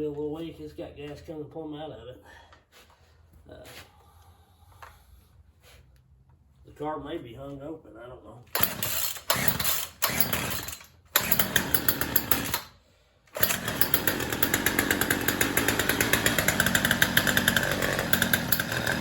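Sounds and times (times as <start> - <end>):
chainsaw running unevenly: 8.6 - 12.7, 13.3 - 19.0.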